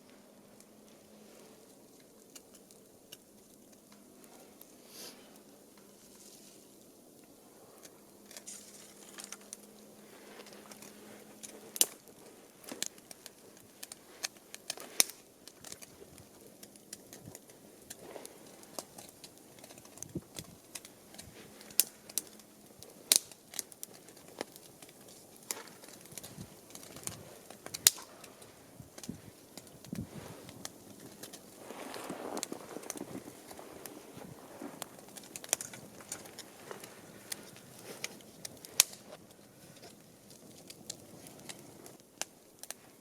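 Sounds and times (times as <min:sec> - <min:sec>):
campfire crackling and popping: 0:00.0 - 0:43.0
low fire hiss: 0:00.0 - 0:43.0.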